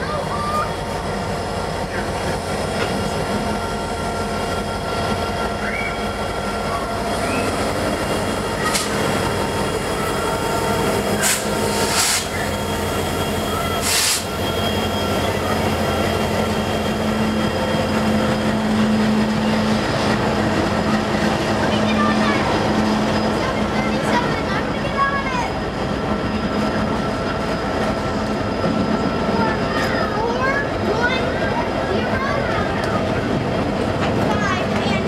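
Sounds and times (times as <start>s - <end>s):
diesel locomotive engine drone: 0.0s - 35.0s
train rolling on rails: 0.0s - 35.0s
high-pitched hissing: 11.0s - 13.2s.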